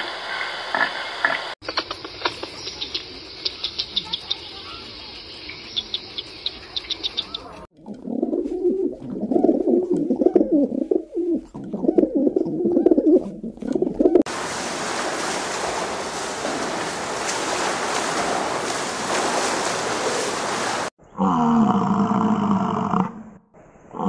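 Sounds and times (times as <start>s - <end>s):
pigeons cooing: 7.9s - 14.3s
fish splashing water: 13.5s - 20.9s.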